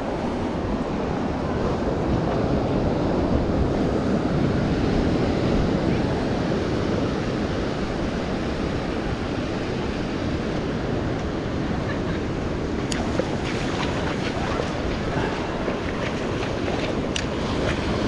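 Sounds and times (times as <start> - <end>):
ocean surf washing onto beach: 0.0 - 18.0
wind rumbling on microphone: 0.0 - 18.0.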